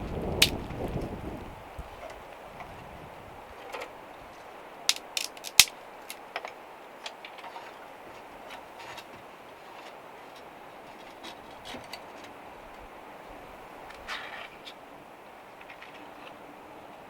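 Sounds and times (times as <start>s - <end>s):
sharp clicks and knocks: 4.9s - 6.2s.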